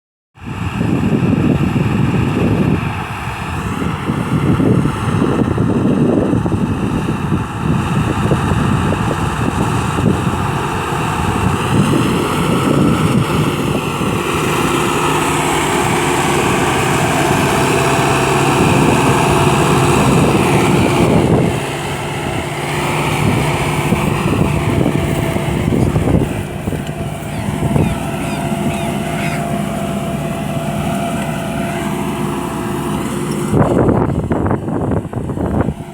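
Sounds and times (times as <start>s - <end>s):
tractor diesel engine running: 0.4s - 35.9s.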